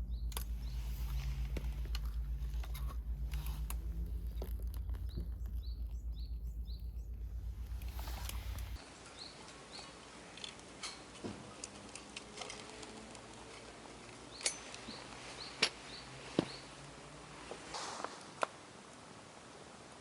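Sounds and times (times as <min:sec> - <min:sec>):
gear clicking and knocking: 0:00.0 - 0:08.8
high rising bird chirps: 0:04.2 - 0:09.9.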